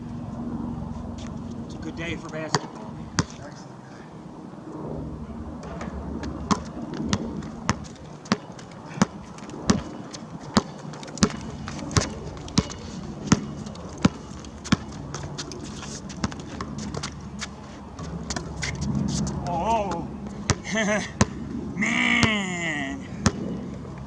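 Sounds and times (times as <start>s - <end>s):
basketball dribbling: 2.5s - 3.4s, 6.2s - 21.4s, 22.0s - 22.6s.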